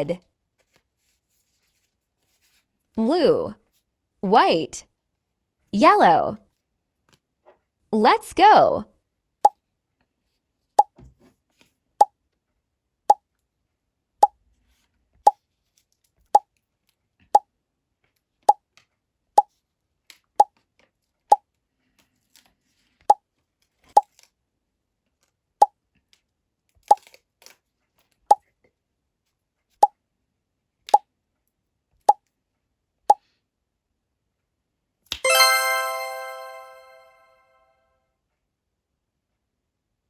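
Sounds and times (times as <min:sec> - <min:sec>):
bright chime: 0:35.2 - 0:37.5.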